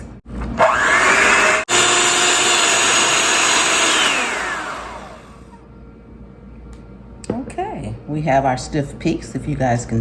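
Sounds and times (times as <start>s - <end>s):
electric mixer whining: 0.4s - 5.6s.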